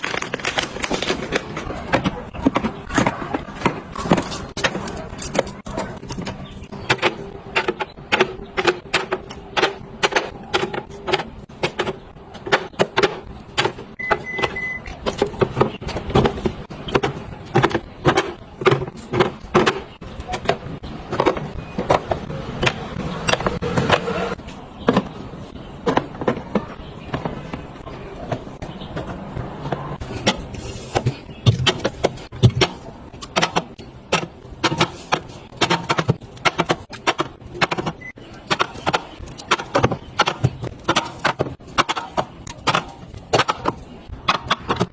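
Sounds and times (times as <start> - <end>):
high beep: 14.0 - 14.9.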